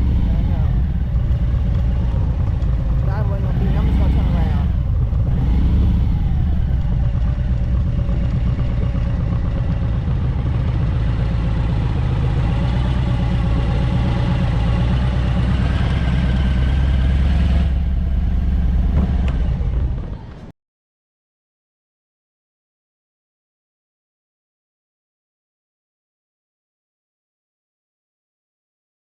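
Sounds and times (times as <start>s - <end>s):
motorcycle engine running: 0.0s - 20.5s
wind and road noise: 0.0s - 20.5s.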